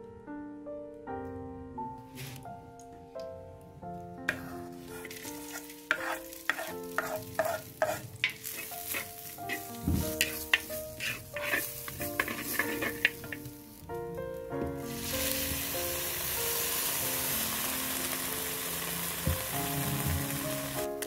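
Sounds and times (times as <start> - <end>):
utensil scraping a pan: 4.3 - 13.7
food sizzling: 4.3 - 21.0.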